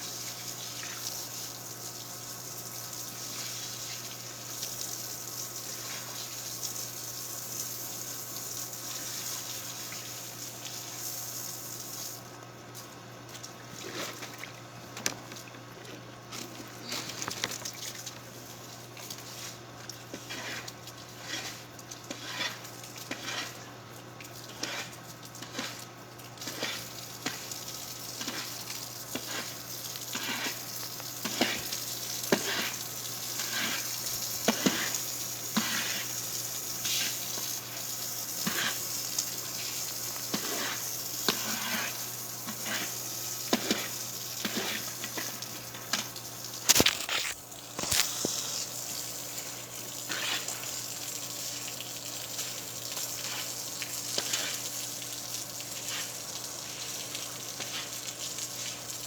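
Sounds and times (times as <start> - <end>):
water rushing or sizzling: 0.0 - 15.4, 16.5 - 59.0.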